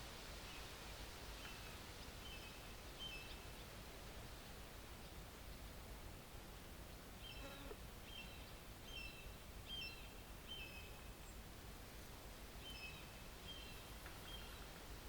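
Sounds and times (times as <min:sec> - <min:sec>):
songbird high chirps: 0:01.4 - 0:03.7, 0:06.9 - 0:11.4, 0:12.6 - 0:14.7.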